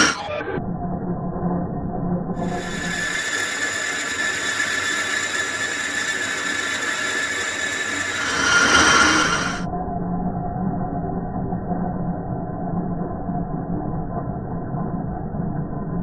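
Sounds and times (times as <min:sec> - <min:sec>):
metal lathe whining: 0:00.0 - 0:00.3, 0:02.4 - 0:09.6.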